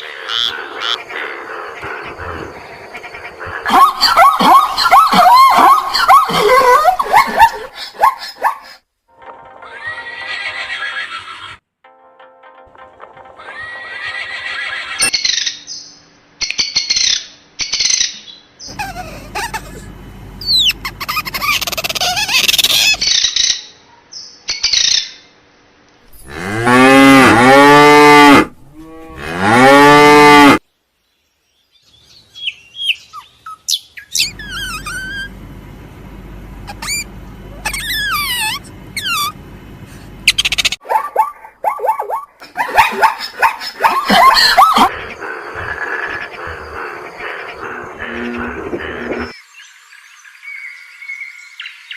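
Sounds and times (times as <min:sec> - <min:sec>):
animal chirps and calls: 0:00.0 - 0:08.6, 0:16.8 - 0:23.7, 0:32.4 - 0:35.3, 0:36.7 - 0:39.4, 0:40.3 - 0:40.8
cow mooing: 0:26.2 - 0:30.6.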